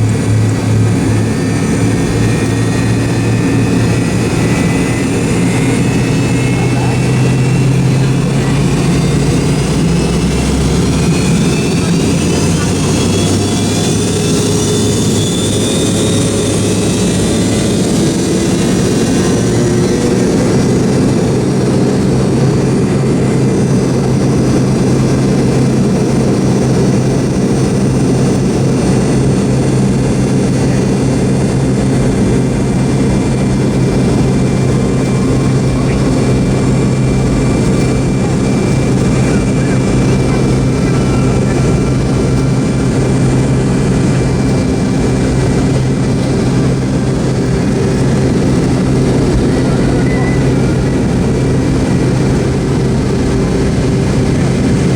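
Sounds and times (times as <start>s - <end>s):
jet engine roar: 0.0s - 54.9s
high whine rising in pitch: 33.7s - 54.9s.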